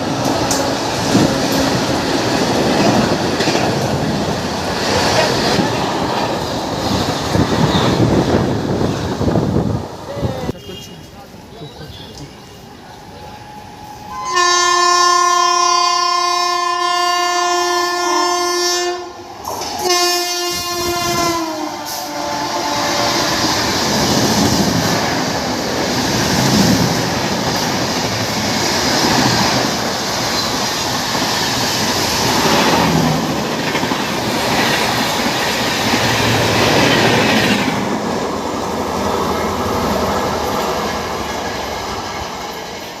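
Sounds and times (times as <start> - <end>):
train wheels clattering and rumbling: 0.0 - 10.0, 23.1 - 43.0
train horn blasts: 14.0 - 19.2, 19.8 - 23.5.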